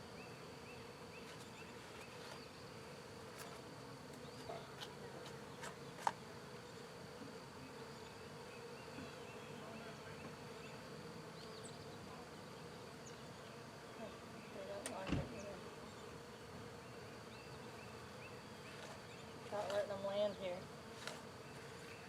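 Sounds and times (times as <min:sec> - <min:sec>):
honey bees buzzing: 0:00.0 - 0:22.0.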